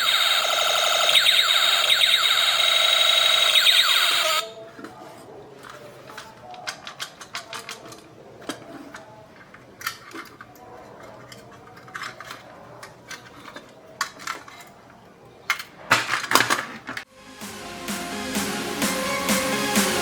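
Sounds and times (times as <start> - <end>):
plastic parts and tools clicking: 5.6 - 17.0.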